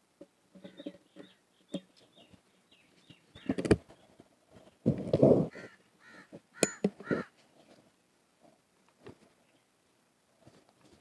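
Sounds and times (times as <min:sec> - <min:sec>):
crow cawing: 0:05.5 - 0:07.3.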